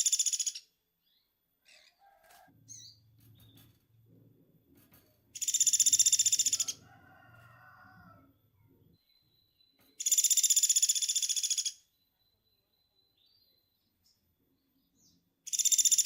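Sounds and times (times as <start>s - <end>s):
woodpecker rattling trill call: 0.0s - 0.7s, 5.3s - 7.9s, 9.9s - 12.0s, 15.5s - 16.0s.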